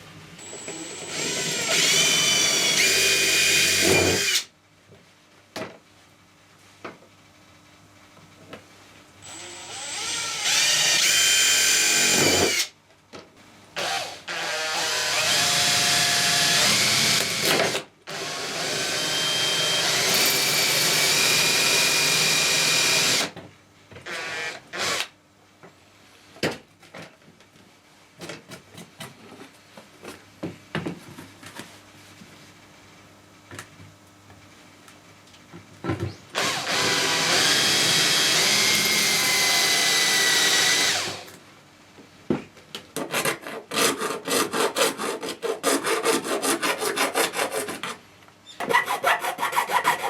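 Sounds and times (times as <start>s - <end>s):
power drill running: 0.5s - 4.4s, 9.2s - 12.7s, 13.8s - 23.3s, 36.4s - 41.3s.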